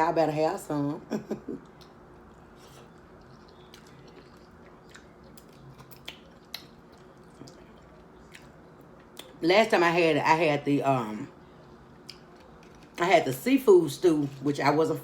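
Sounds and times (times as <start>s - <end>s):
low room hum: 0.0s - 15.0s
wet mouth clicks and smacks: 4.9s - 7.6s.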